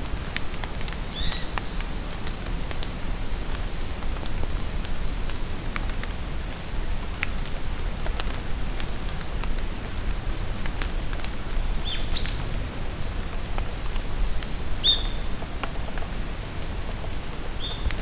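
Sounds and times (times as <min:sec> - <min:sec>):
steady rain in forest: 0:00.0 - 0:18.0.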